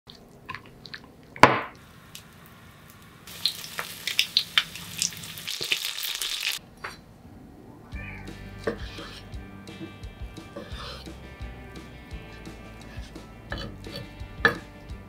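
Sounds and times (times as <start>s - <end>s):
food sizzling in oil: 1.8s - 6.6s.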